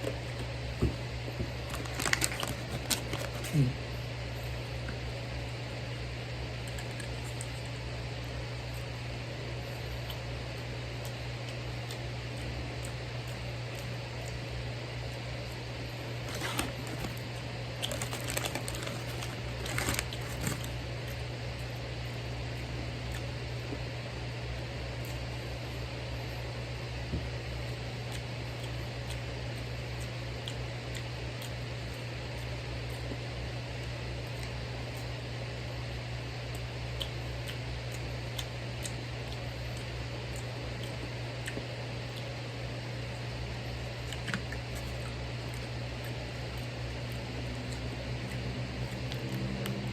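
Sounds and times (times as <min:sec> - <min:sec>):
steady fan hum: 0:00.0 - 0:49.9
food packaging crinkling: 0:01.5 - 0:03.7, 0:16.1 - 0:20.8.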